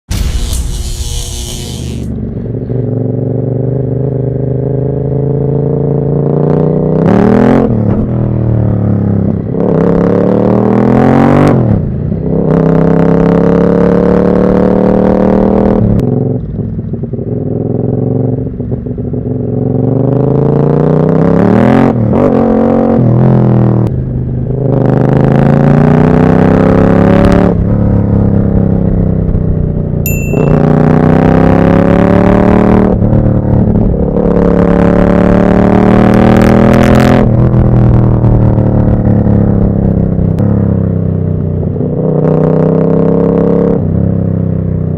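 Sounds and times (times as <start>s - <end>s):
brief high whistle: 0.1s - 2.1s, 30.1s - 30.8s
motorcycle engine accelerating: 0.1s - 44.9s.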